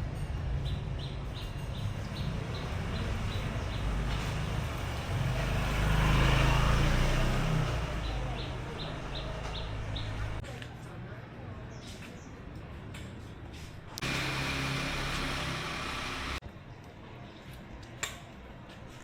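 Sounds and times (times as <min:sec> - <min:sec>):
vehicle engine passing: 0:01.8 - 0:10.4, 0:14.0 - 0:16.4.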